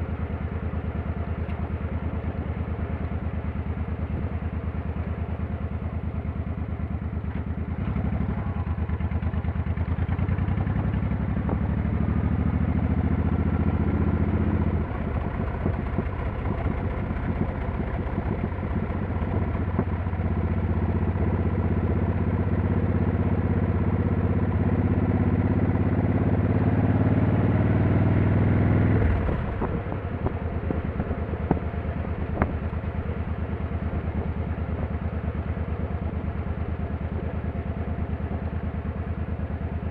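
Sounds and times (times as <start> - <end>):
motorcycle engine revving: 7.3 - 37.4.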